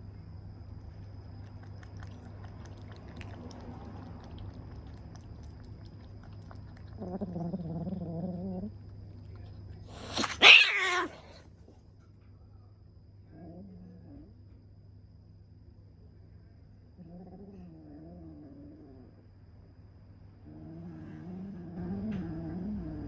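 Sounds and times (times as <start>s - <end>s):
kitten meowing: 10.0s - 11.4s.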